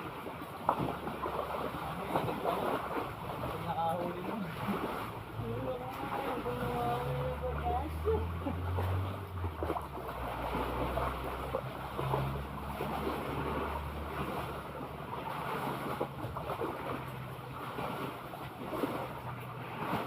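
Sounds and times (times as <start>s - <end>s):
sea water washing: 0.0s - 20.0s
low motor drone: 4.7s - 19.7s.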